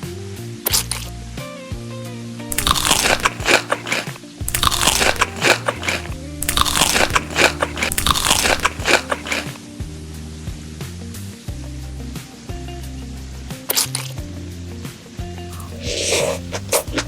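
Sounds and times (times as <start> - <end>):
crunchy food being chewed: 2.5 - 9.6, 15.5 - 17.0.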